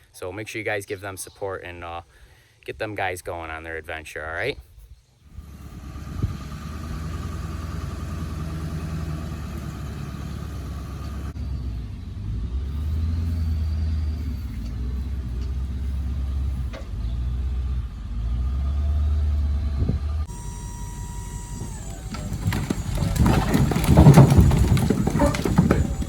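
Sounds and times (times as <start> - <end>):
vehicle engine droning: 5.3 - 26.0.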